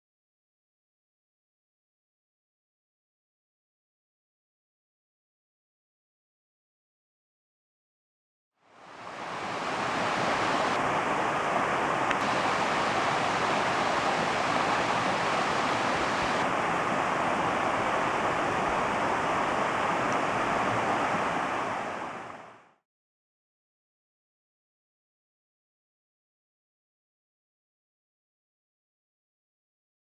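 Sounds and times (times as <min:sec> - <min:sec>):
steady rushing noise: 0:08.9 - 0:20.6.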